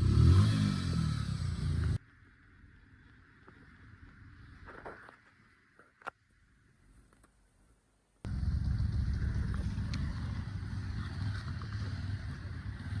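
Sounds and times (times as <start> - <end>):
car engine running: 8.3 - 13.0.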